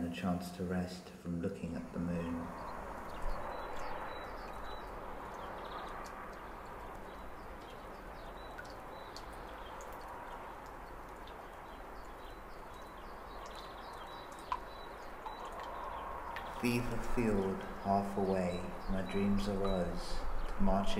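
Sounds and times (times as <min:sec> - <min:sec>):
outdoor noise bed: 0:00.0 - 0:20.9
faint bird chirps: 0:11.4 - 0:20.9.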